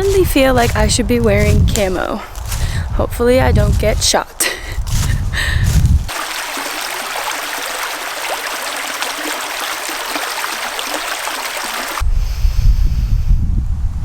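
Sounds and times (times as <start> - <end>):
stream rushing: 4.8 - 12.0.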